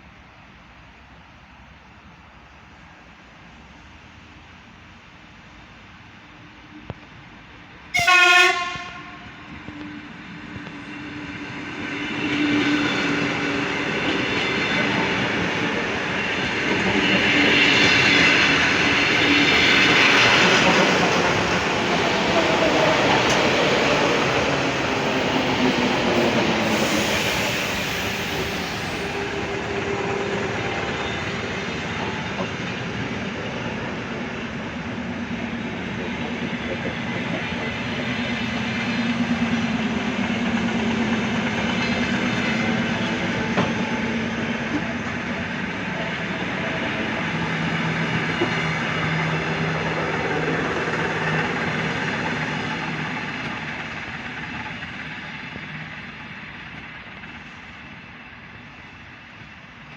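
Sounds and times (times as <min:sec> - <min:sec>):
electric train low hum: 0:00.0 - 0:59.9
train wheels clacking over track: 0:08.5 - 0:59.9.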